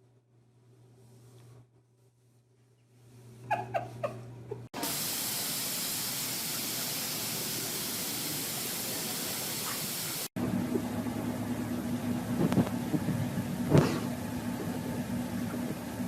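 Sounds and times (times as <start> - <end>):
loud steady hiss: 4.8 - 10.3
low hum: 10.4 - 16.0.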